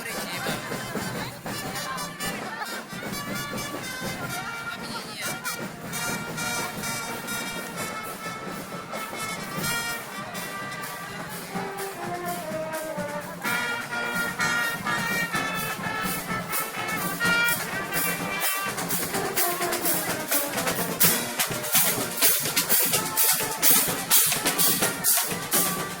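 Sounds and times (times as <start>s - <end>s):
snare drum: 0.0s - 26.0s
brass sustained notes: 1.4s - 26.0s
bass drum: 11.1s - 26.0s.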